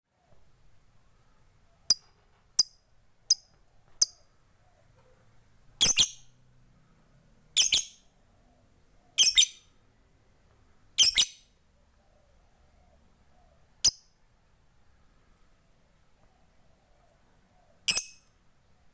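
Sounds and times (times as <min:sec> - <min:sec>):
lovebird chirping and shrieking: 0:05.8 - 0:06.3, 0:07.6 - 0:08.0, 0:09.2 - 0:09.7, 0:11.0 - 0:11.5, 0:17.9 - 0:18.3.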